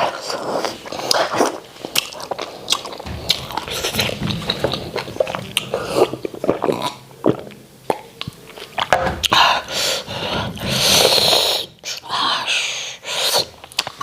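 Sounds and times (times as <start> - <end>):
lip-smacking and chewing: 0.0 - 9.4, 13.2 - 14.0.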